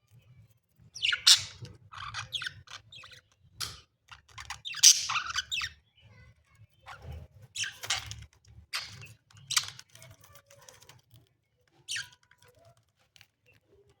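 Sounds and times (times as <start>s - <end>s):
small clicks and scratches: 0.0s - 5.7s, 6.8s - 14.0s
budgerigars chirping: 1.0s - 3.8s, 4.4s - 5.8s.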